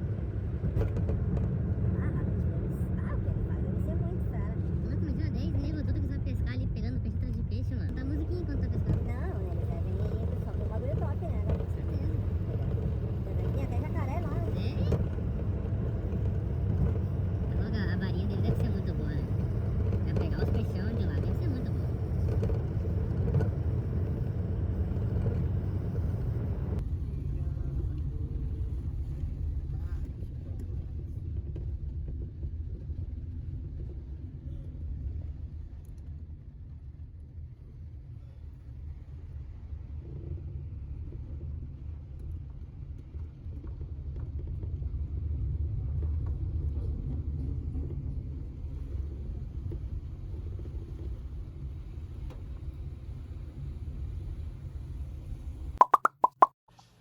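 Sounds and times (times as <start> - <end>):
car road rumble: 0.0 - 35.6.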